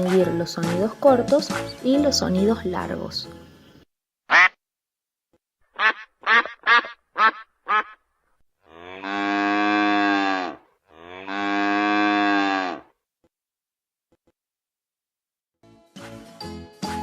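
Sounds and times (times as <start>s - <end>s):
duck quacks: 4.3s - 4.6s, 5.7s - 8.0s
cow mooing: 8.6s - 13.0s.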